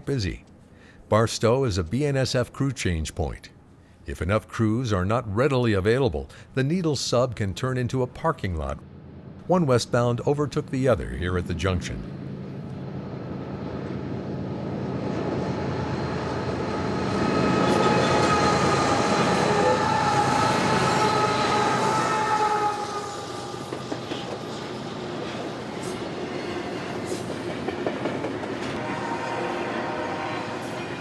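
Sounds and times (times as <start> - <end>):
freight train rolling: 7.1 - 31.0
train wheels squealing: 16.9 - 27.4.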